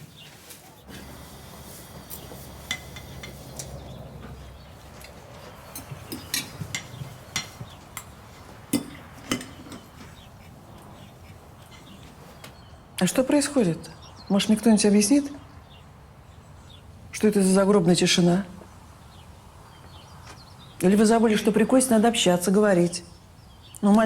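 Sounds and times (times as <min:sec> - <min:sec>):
cutlery clinking on plates: 0:02.0 - 0:04.4, 0:05.0 - 0:10.3, 0:11.0 - 0:12.2.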